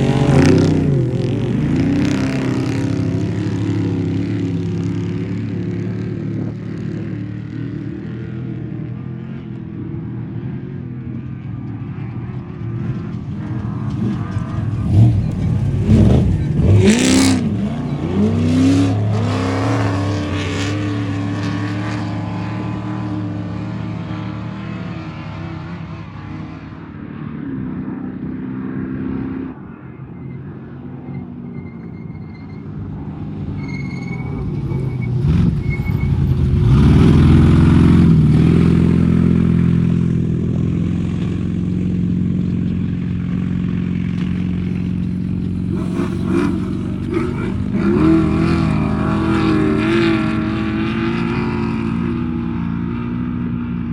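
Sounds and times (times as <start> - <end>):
race vehicle engine revving: 0.0 - 7.8, 12.8 - 26.4, 33.2 - 41.6, 43.8 - 53.2.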